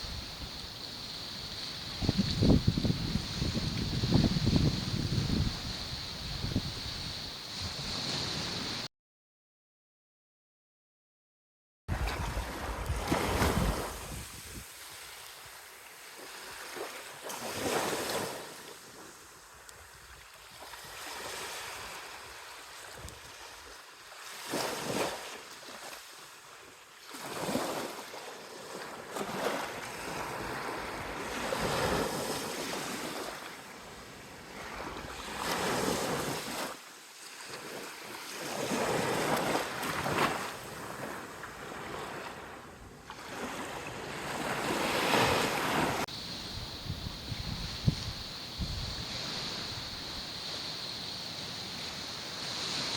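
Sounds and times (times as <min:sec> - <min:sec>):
wind buffeting microphone: 0:00.0 - 0:08.8, 0:46.1 - 0:52.9
sea waves washing on shore: 0:00.0 - 0:08.9, 0:11.9 - 0:26.4, 0:27.0 - 0:52.9.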